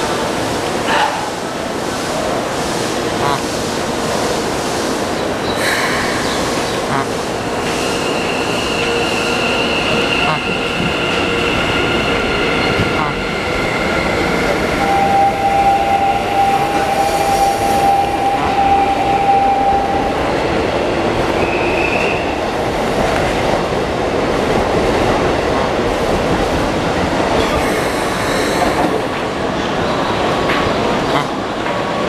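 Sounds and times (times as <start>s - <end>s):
train wheels on rail: 0.0s - 32.0s
high squeal: 7.9s - 20.2s.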